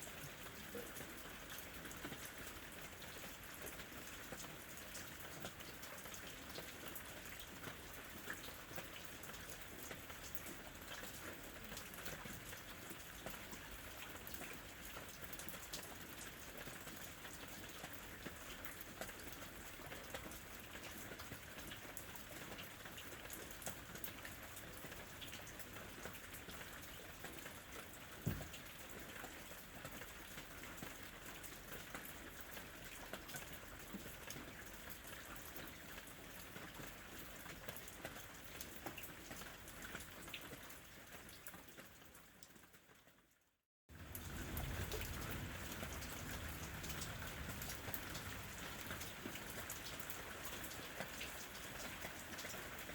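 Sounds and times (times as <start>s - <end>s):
raindrops pattering: 0.0s - 43.0s, 43.9s - 52.9s
thump: 28.2s - 28.6s.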